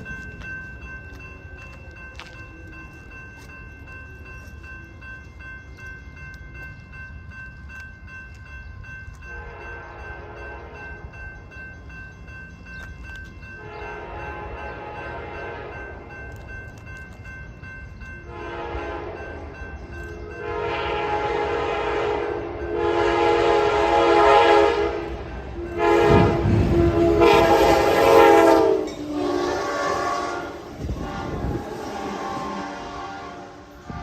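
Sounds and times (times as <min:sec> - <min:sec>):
train rumbling past: 0:00.0 - 0:34.0
locomotive air horn blasts: 0:18.3 - 0:19.3, 0:20.4 - 0:34.0.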